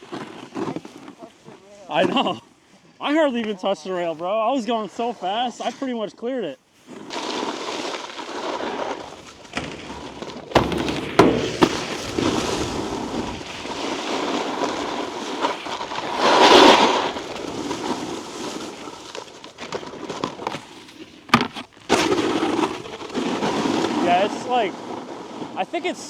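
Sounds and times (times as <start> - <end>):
snowboard edges scraping snow: 0.0 - 2.3, 3.1 - 26.0
sharp knocks: 9.5 - 13.4.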